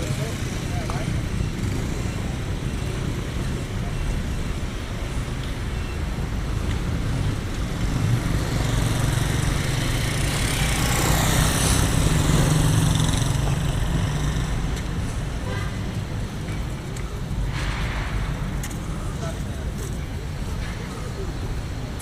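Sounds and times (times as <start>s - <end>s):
vehicle engines running: 0.0s - 22.0s
vehicle passing close: 7.1s - 15.0s.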